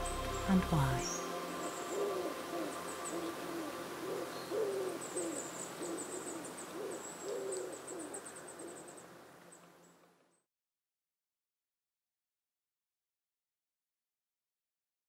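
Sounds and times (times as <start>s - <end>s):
birds hooting: 0.0s - 9.6s.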